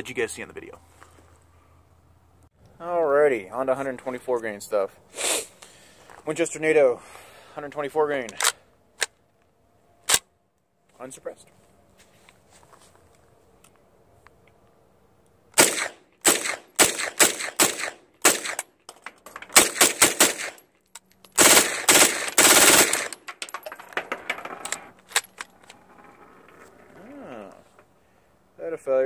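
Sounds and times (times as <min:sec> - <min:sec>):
gunshots: 0:15.6 - 0:18.6, 0:19.5 - 0:20.6, 0:21.4 - 0:23.3.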